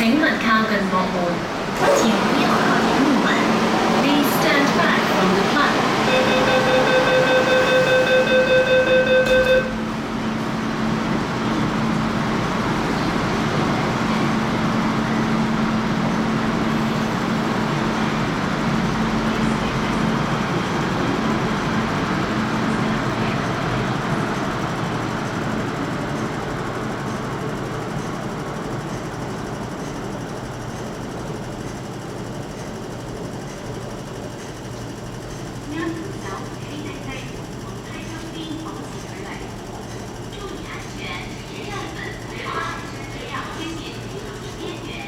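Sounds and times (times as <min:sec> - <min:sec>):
train running with low hum: 0:00.0 - 0:45.0
rapid door warning beeps: 0:06.0 - 0:09.9.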